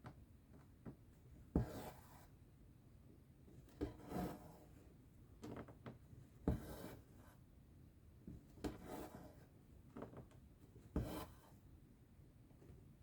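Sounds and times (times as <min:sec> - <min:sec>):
needle and thread rasping through fabric: 0:03.8 - 0:04.7.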